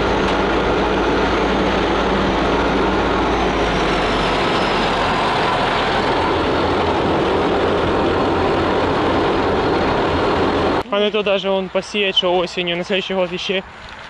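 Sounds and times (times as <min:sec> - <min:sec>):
combine harvester running: 0:00.0 - 0:14.0.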